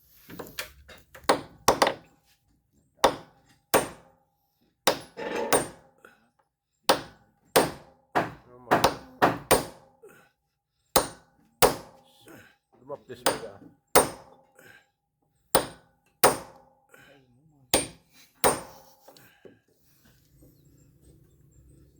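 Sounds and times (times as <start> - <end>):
hand tool striking wood: 1.2 - 2.1, 3.0 - 4.1, 4.9 - 5.8, 6.9 - 9.9, 11.0 - 12.0, 13.2 - 14.4, 15.6 - 16.7, 17.7 - 19.2.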